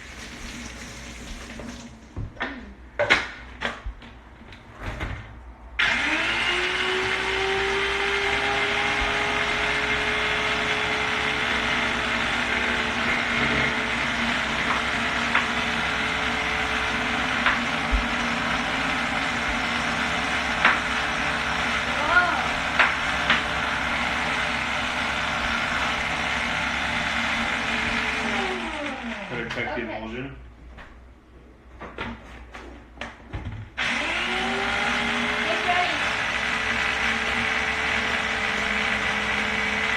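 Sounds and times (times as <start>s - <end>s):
food processor motor whining: 5.8s - 29.8s, 33.8s - 39.9s.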